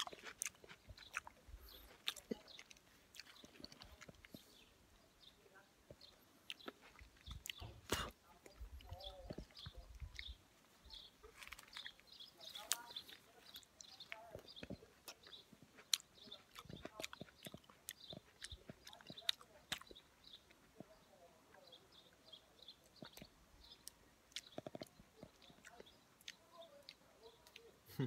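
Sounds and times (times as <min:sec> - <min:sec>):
lip smacks and mouth clicks: 0:00.0 - 0:04.5, 0:06.5 - 0:08.2, 0:11.3 - 0:20.9, 0:22.8 - 0:27.8
wet chewing: 0:00.0 - 0:28.0.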